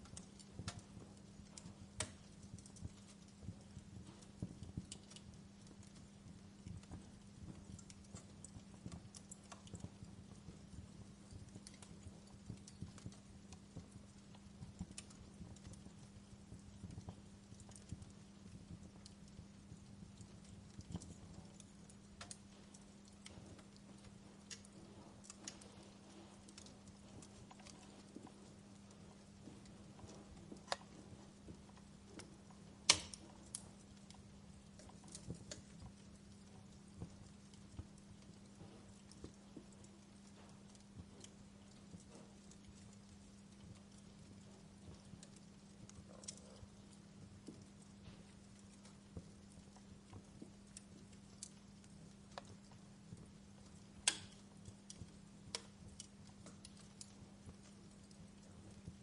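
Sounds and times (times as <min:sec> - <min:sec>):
faint low hum: 0:00.0 - 0:59.0
fireplace crackling: 0:00.0 - 0:59.0
low steady rumble: 0:00.0 - 0:59.0.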